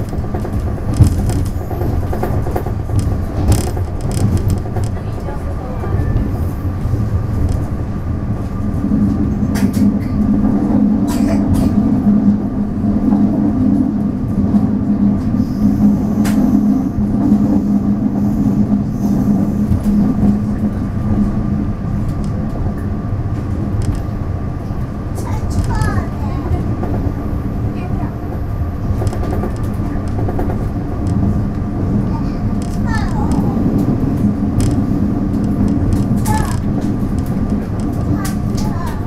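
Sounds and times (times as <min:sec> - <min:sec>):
wheel-on-rail rumble: 0:00.0 - 0:39.0
sharp clicks from track: 0:09.5 - 0:10.2, 0:32.6 - 0:39.0.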